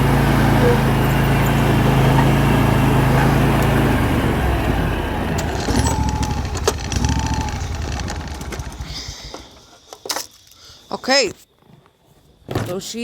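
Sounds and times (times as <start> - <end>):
mower engine running: 0.0 - 9.2.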